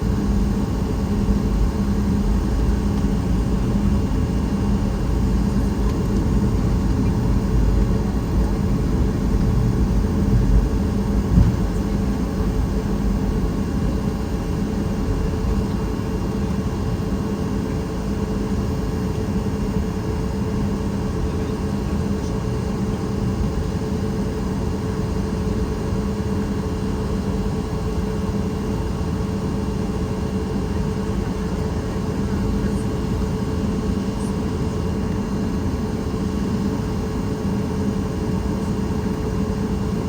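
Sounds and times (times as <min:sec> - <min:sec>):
airliner cabin drone: 0:00.0 - 0:40.0.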